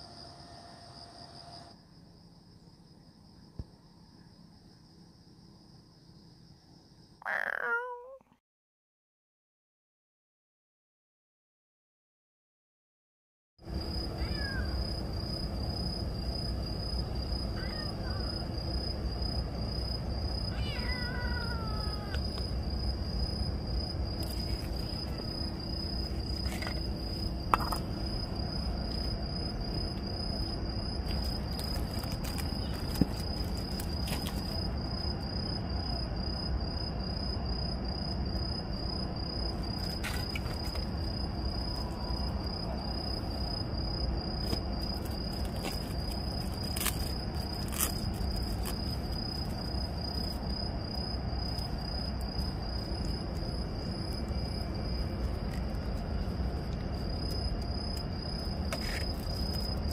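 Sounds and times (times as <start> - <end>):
cricket trilling: 0.0 - 8.2, 13.6 - 59.9
low background hum: 13.6 - 59.9.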